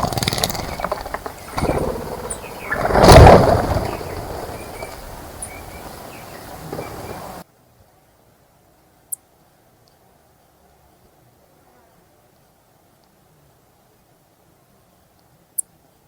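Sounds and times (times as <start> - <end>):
faint bird chirps: 0.2 - 7.4.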